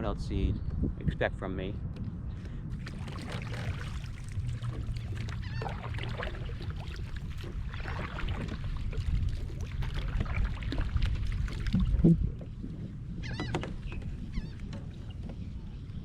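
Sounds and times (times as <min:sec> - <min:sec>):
water lapping against kayak: 0:02.3 - 0:16.0
low rumble: 0:08.7 - 0:14.6.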